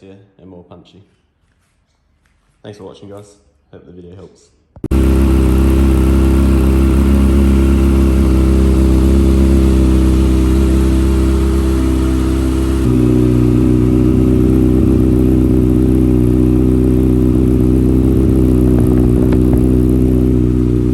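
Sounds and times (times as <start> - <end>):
motorcycle engine running: 4.8 - 20.9.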